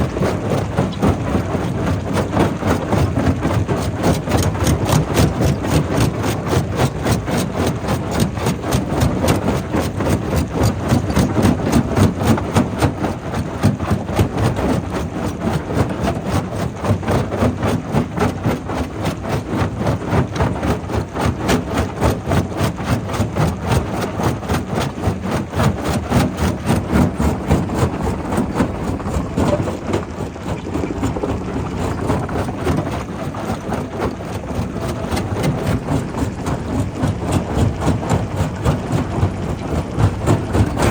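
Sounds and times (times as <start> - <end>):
low machine drone: 26.0 - 40.9.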